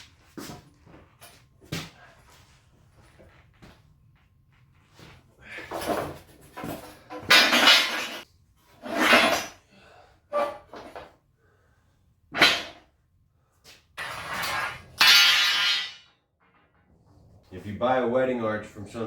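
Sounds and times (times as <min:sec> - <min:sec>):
noisy scrapes and clatters: 0:14.0 - 0:17.7.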